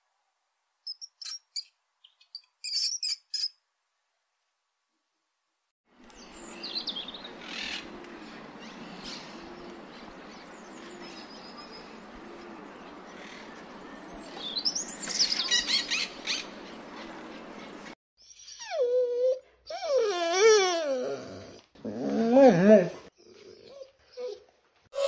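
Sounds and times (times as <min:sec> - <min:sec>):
outdoor background noise: 0:00.0 - 0:25.0
wild birds chirping: 0:06.0 - 0:18.6.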